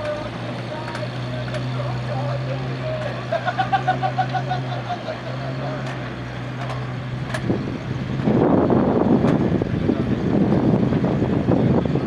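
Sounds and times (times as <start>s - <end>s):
truck engine driving off: 0.0s - 12.0s.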